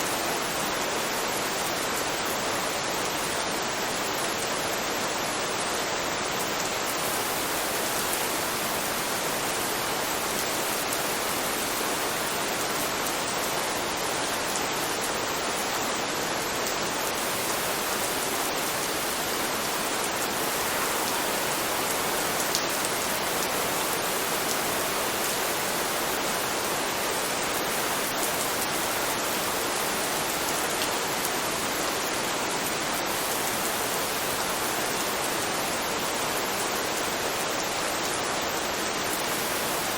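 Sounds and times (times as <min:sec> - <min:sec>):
steady rain hiss: 0:00.0 - 0:39.9
faint raindrop ticks: 0:20.1 - 0:25.7, 0:27.2 - 0:31.6.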